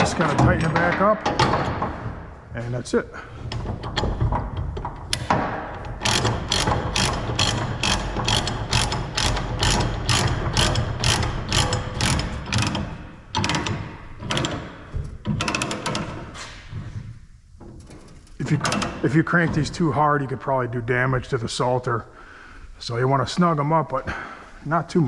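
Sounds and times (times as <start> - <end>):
ratchet clicking: 5.1 - 13.8.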